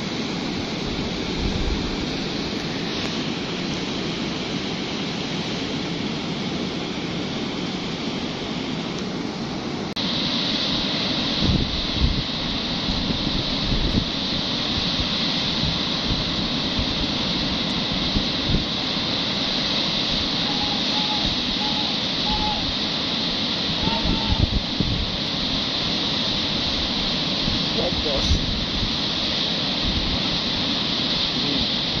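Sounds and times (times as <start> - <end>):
wind thumps on microphone: 0.0 - 3.9, 11.3 - 20.4, 23.6 - 32.0
river water rushing: 0.0 - 32.0.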